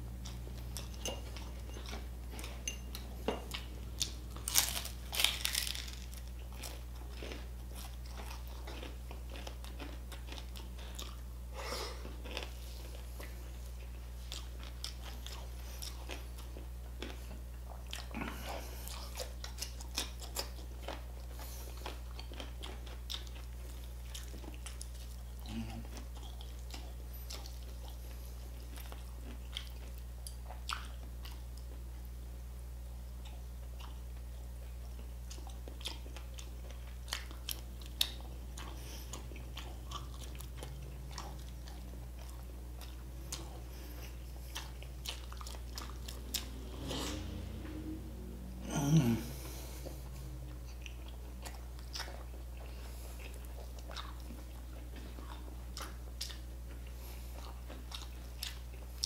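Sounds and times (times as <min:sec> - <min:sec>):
low steady hum: 0:00.0 - 0:59.0
person crunching and chewing: 0:00.2 - 0:31.8, 0:33.2 - 0:47.5, 0:48.7 - 0:59.0.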